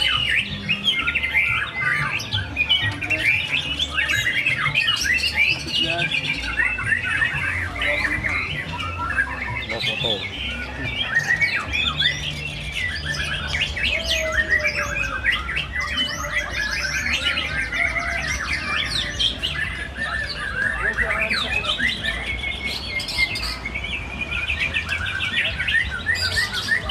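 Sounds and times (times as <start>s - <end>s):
birds singing: 0.0s - 26.9s.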